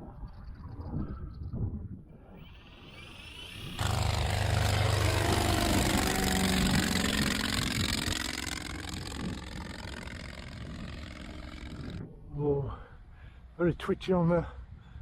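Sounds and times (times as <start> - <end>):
loud rushing engine noise: 2.4 - 12.0.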